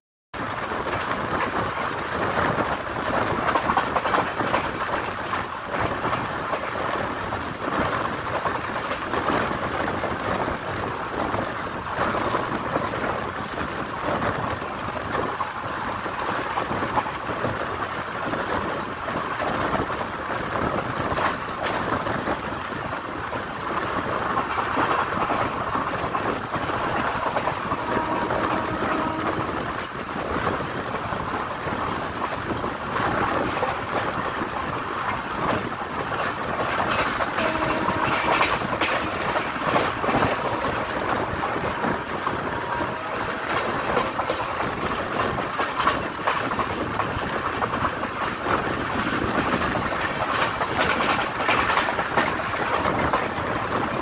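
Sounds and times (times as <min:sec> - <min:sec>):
rumble of train wheels on rails: 0:00.3 - 0:54.0
wheels clattering over track: 0:20.5 - 0:54.0.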